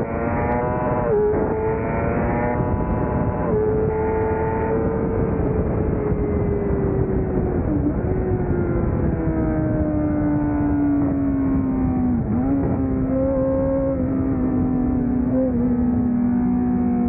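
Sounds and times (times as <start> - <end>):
racing motorcycle engine high revs: 0.0 - 8.1
wind and road noise: 0.0 - 17.0.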